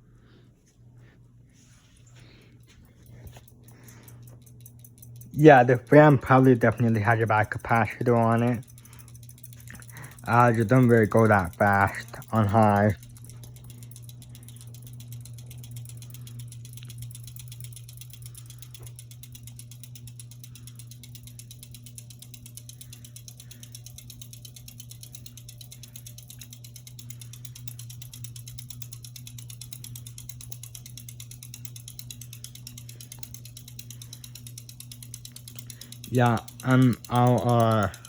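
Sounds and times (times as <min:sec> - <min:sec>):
ceiling fan motor hum: 0:00.0 - 0:38.0
ceiling fan ticking: 0:02.0 - 0:38.0.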